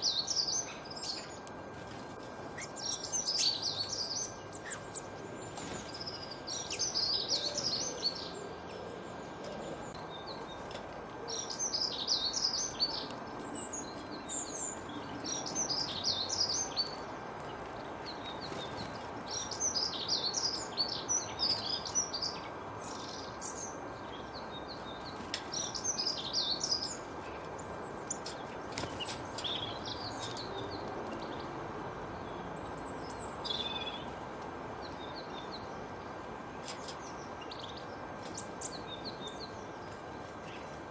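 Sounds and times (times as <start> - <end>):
birds chirping: 0.0 - 40.9
faint steady hum: 0.0 - 40.9.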